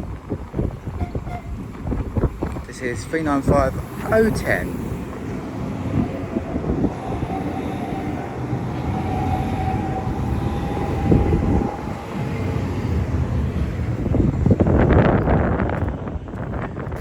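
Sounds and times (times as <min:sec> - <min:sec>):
electric train rumbling: 0:00.0 - 0:17.0
faint train whine: 0:02.7 - 0:16.6.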